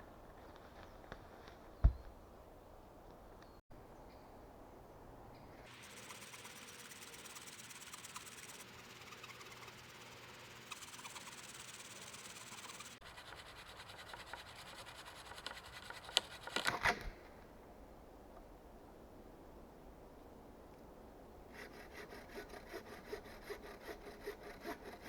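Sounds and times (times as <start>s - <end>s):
hand saw rasping through wood: 5.7s - 16.6s, 21.6s - 25.0s.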